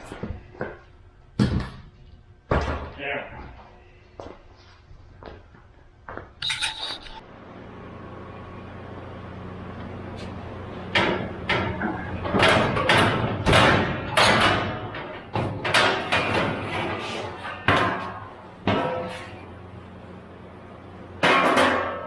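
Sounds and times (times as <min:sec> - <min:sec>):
low steady hum: 0:03.2 - 0:16.4
sheet metal clanks and bangs: 0:10.9 - 0:17.0.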